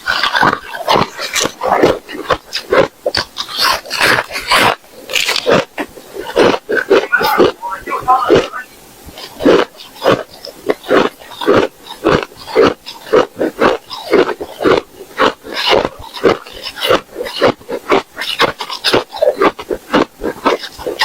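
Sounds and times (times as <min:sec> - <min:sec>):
person crunching ice: 0:00.0 - 0:07.6, 0:09.4 - 0:21.0.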